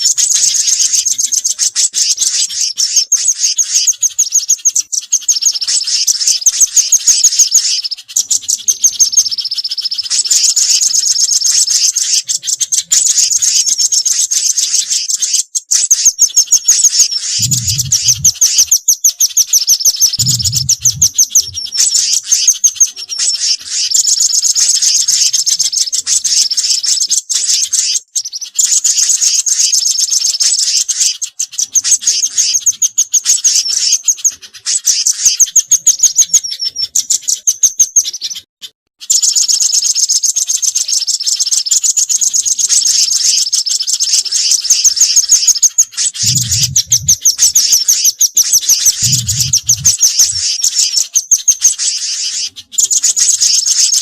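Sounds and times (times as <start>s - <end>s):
songbirds chirping in trills: 0.0s - 54.0s
short low sounds: 20.2s - 21.6s.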